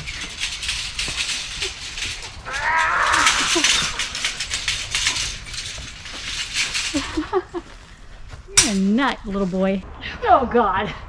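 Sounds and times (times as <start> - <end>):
rustling: 0.0 - 9.8.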